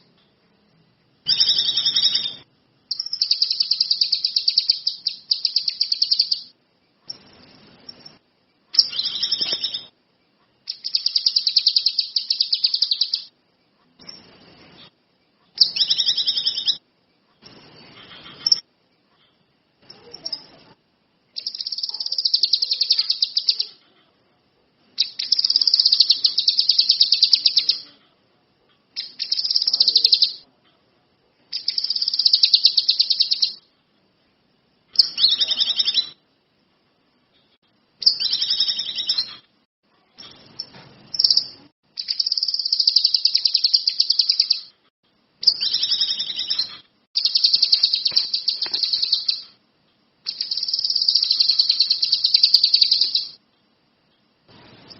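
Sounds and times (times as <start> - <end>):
songbird trilling: 1.3 - 6.5, 8.8 - 9.9, 10.7 - 13.3, 15.6 - 16.8, 21.4 - 23.8, 25.0 - 27.9, 31.6 - 33.6, 38.0 - 39.4, 40.2 - 44.7, 45.4 - 49.6, 50.3 - 53.4.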